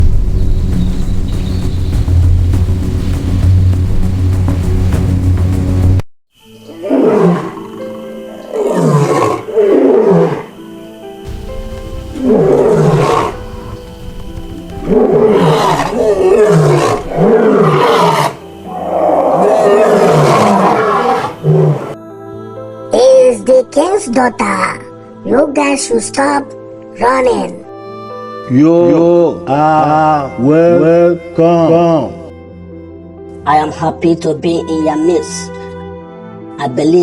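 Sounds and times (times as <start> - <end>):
music with long held tones: 0.0 - 27.0, 27.6 - 37.0
lions roaring: 8.5 - 10.5, 11.3 - 22.0.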